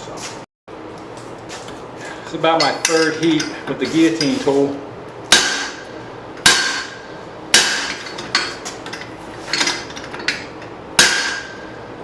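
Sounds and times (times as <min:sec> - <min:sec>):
hammer striking metal tool: 0:05.3 - 0:11.8.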